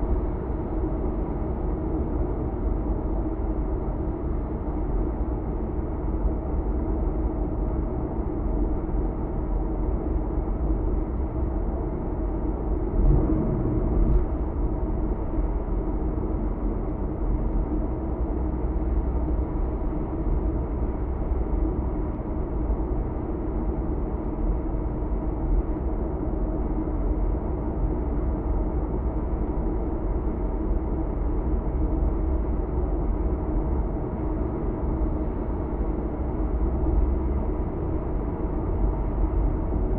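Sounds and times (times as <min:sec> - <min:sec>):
car road and engine noise: 0:12.3 - 0:16.5.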